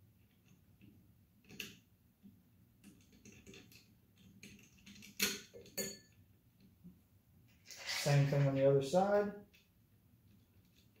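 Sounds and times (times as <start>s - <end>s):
hardware clicks and knocks: 2.8s - 6.2s.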